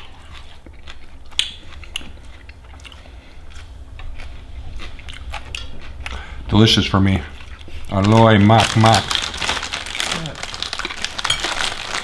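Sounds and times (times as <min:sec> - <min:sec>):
person chewing crunchy food: 0:00.0 - 0:12.0
steady low hum: 0:00.0 - 0:12.0.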